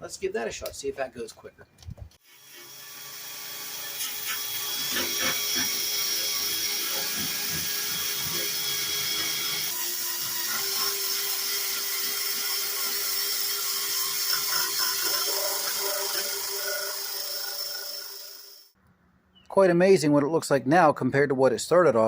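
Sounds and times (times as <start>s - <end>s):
power drill motor whine: 2.2s - 18.8s
abrasive disc scrubbing metal: 11.3s - 18.5s.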